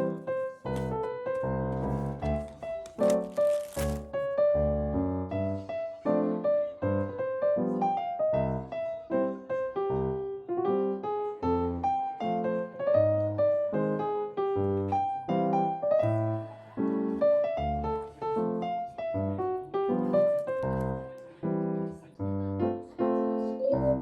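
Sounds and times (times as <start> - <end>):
electric piano tune with beat: 0.0 - 4.4, 5.4 - 21.9.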